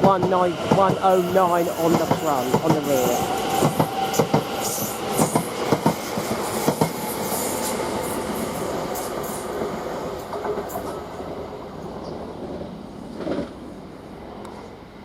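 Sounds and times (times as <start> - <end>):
train rolling rumble: 0.0 - 15.0
train wheels clicking over rail joints: 0.1 - 7.7.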